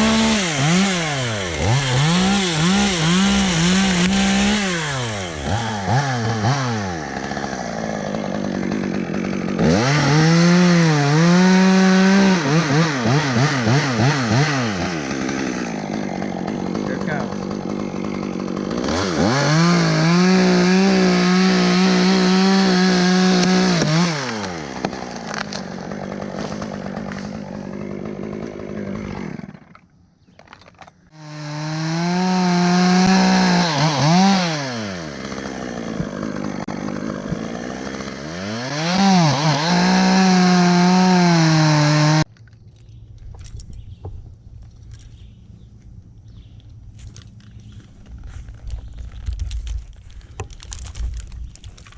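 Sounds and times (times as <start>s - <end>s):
chainsaw revving and idling: 0.0s - 29.9s, 31.1s - 42.3s.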